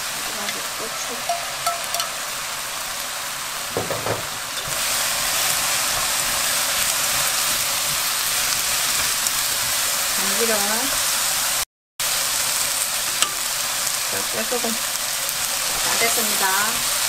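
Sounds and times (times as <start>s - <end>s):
shrimp sizzling in a wok: 0.0s - 17.0s
knock: 3.8s - 4.3s.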